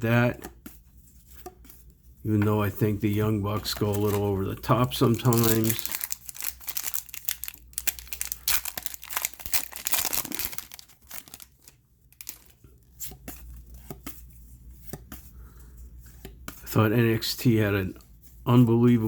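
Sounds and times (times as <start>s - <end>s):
cards rustling and clicking: 2.4s - 14.2s
wrapper tearing and crinkling: 3.8s - 12.6s.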